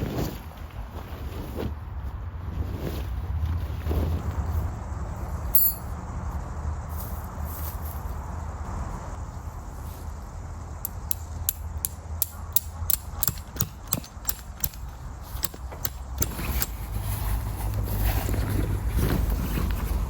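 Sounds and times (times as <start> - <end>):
sharp mechanical clicks: 10.8 - 16.8.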